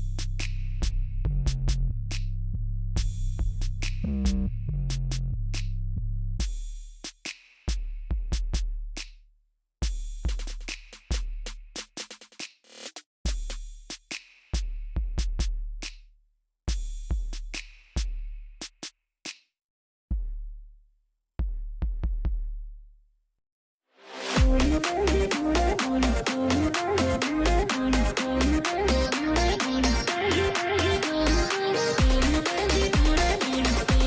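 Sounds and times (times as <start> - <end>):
deep bass kicks: 0.0 - 6.4, 24.4 - 24.8, 32.0 - 32.4.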